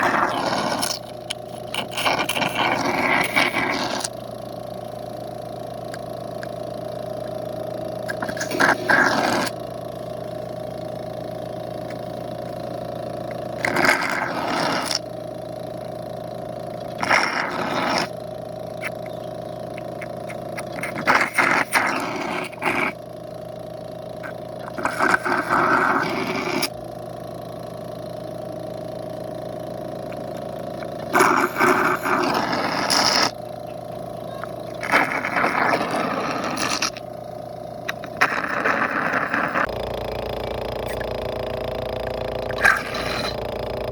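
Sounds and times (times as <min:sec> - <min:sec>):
small motor humming: 0:00.0 - 0:43.9.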